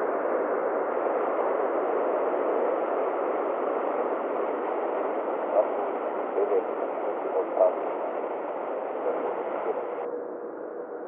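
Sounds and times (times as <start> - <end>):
radio receiver hiss: 0.8 - 10.1.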